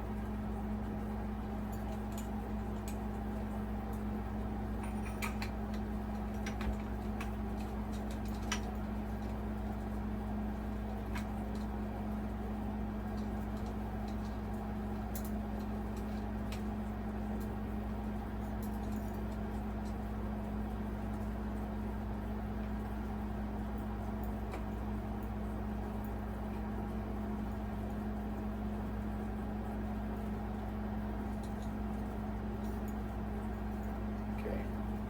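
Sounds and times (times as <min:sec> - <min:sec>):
air conditioner humming: 0:00.0 - 0:35.0.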